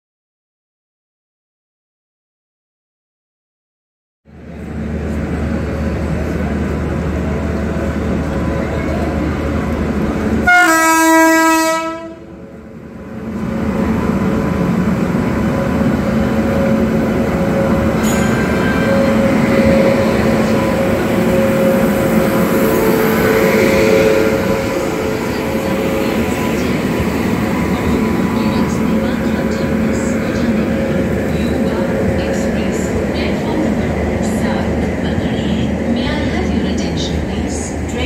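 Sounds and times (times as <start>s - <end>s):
train rumbling past: 4.3s - 38.0s
train horn blast: 10.4s - 12.3s, 18.9s - 26.2s.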